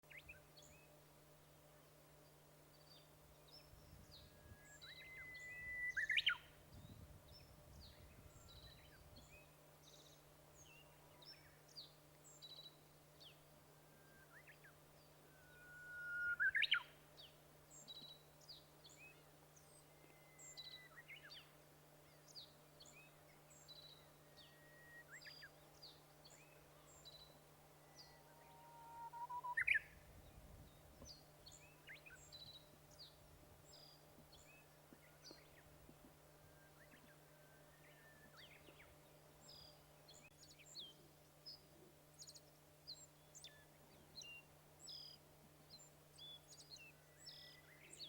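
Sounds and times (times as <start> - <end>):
faint low hum: 0.1 - 48.0
faint high bird chirps: 2.8 - 21.5, 22.1 - 35.7, 36.4 - 48.0
bird singing whistled song: 3.5 - 11.6, 12.4 - 17.0, 19.8 - 21.5, 22.8 - 35.6, 36.4 - 41.6, 42.2 - 48.0.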